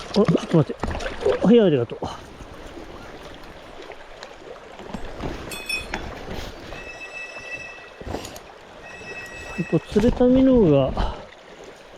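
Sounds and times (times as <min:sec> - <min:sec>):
knocks and splashes at water's edge: 0:00.0 - 0:11.9
mountain stream running: 0:00.0 - 0:11.9
thin steady high tone: 0:06.7 - 0:08.1, 0:08.8 - 0:10.0.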